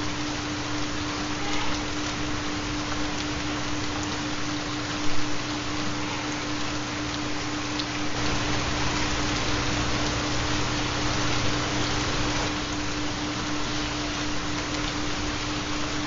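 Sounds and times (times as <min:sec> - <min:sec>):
rain hiss: 0:00.0 - 0:16.0.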